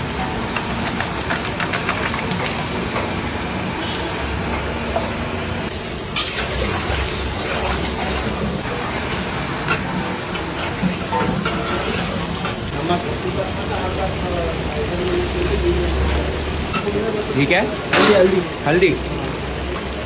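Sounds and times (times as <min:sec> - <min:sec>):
chicken sizzling in hot oil: 0:00.0 - 0:20.0
spatula scraping pan: 0:06.2 - 0:12.7.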